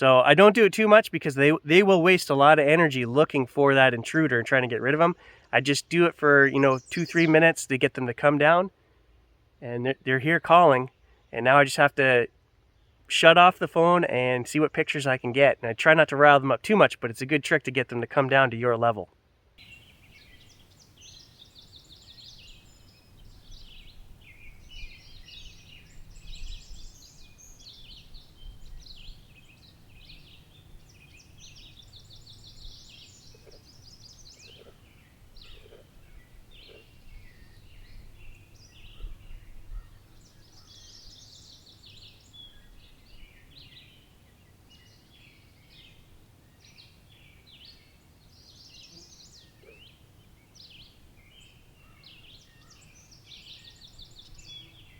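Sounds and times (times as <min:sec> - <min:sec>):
warblers singing and calling: 0:00.0 - 0:08.6, 0:19.6 - 0:46.0, 0:46.6 - 0:54.9.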